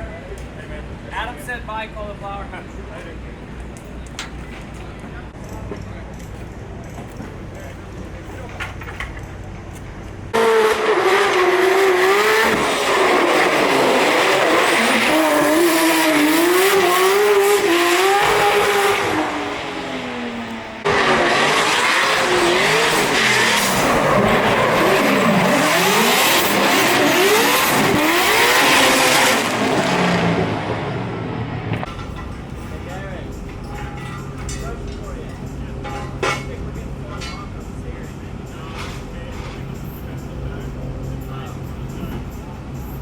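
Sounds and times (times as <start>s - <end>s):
car engine revving: 10.3s - 31.9s.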